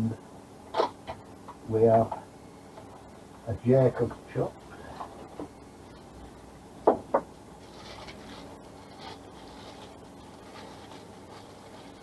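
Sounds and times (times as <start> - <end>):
faint handling rustle: 7.6 - 12.0.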